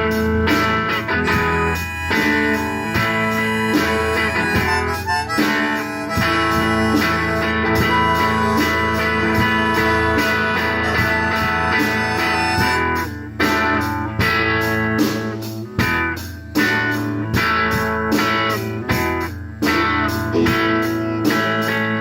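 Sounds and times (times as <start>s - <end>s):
strummed guitars: 0.0s - 22.0s
lead instrument holding long notes: 1.1s - 13.2s.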